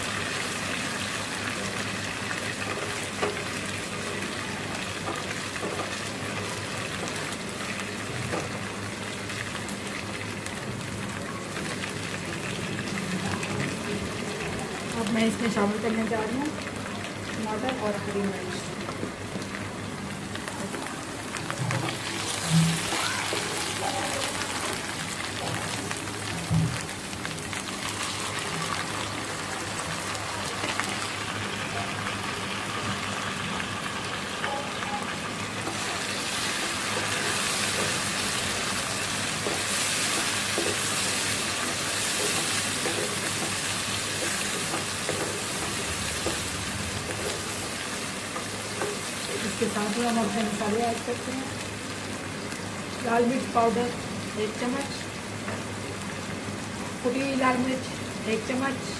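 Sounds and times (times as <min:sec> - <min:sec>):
vegetables sizzling in hot oil: 0:00.0 - 0:58.9
spatula stirring in pan: 0:35.6 - 0:49.7.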